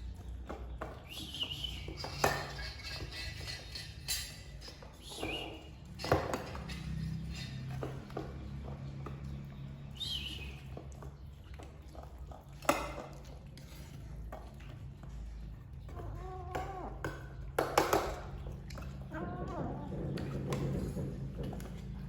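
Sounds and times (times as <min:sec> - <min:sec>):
dishes clinking: 0:01.8 - 0:08.2
kittens mewing: 0:18.9 - 0:20.7.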